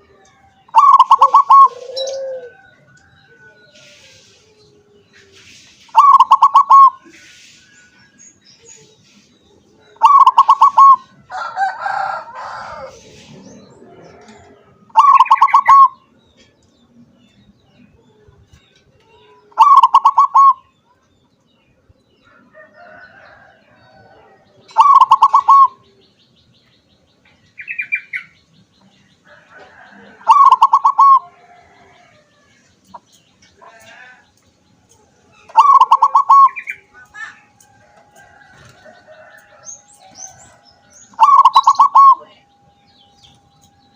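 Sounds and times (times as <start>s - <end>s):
dove cooing: 0.7s - 5.0s, 5.9s - 7.2s, 9.8s - 16.0s, 19.4s - 20.7s, 23.4s - 26.0s, 29.5s - 32.3s, 35.5s - 37.4s, 38.4s - 42.6s.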